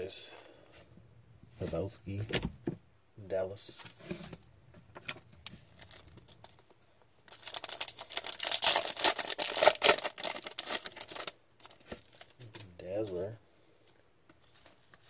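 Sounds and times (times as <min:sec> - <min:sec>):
card pack wrapper crinkling: 0:05.5 - 0:12.7.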